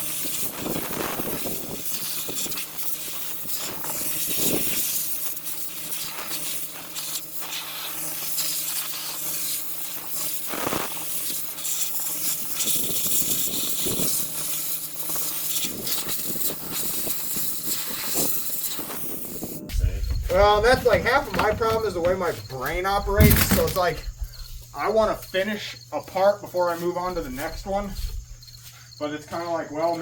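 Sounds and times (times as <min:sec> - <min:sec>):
sandblaster hissing on metal: 0:00.0 - 0:19.5.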